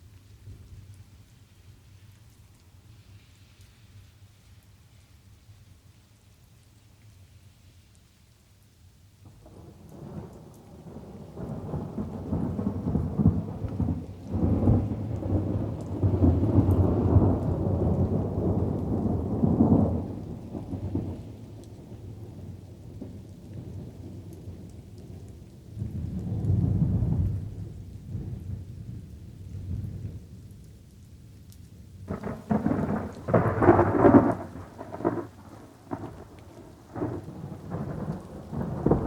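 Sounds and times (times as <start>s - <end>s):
light rain: 0.0s - 39.0s
thunder rolling: 9.4s - 21.2s, 32.1s - 39.0s.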